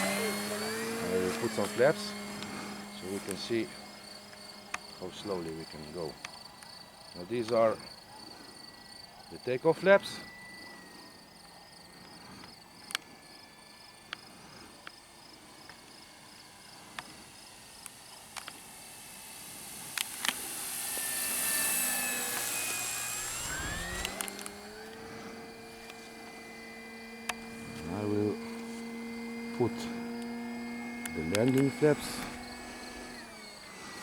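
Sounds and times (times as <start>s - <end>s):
model plane electric motor and propeller: 0.0s - 34.0s
crickets chirping: 3.6s - 31.1s
sharp clicks: 17.8s - 18.8s, 19.4s - 28.7s, 29.9s - 33.3s.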